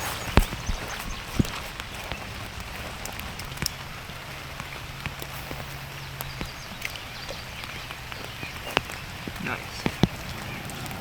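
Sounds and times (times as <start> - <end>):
light rain pattering: 0.0 - 11.0.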